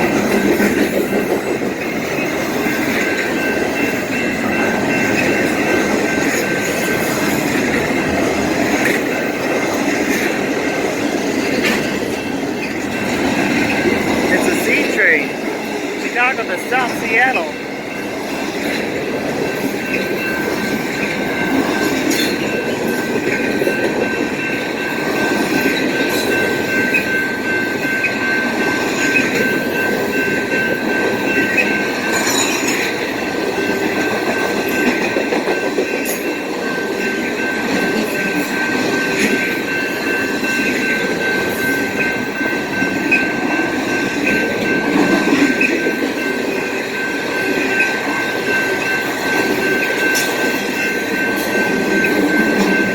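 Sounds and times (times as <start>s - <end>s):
freight train rolling past: 0.0s - 52.9s
high squeal from train wheels: 17.6s - 52.9s.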